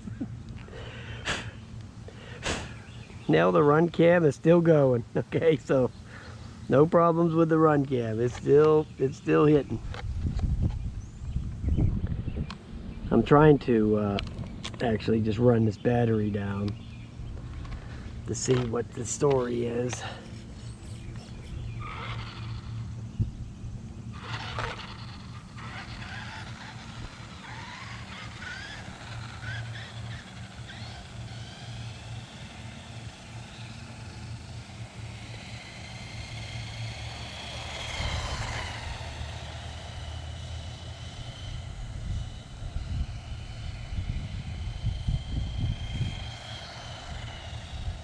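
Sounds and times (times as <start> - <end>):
rc truck motor whining: 15.4 - 48.0.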